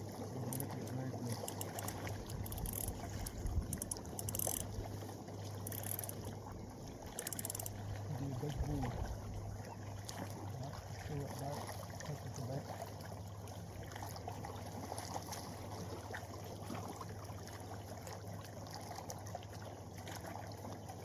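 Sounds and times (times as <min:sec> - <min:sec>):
steady low hum: 0:00.0 - 0:11.6
water lapping at shoreline: 0:00.0 - 0:21.0.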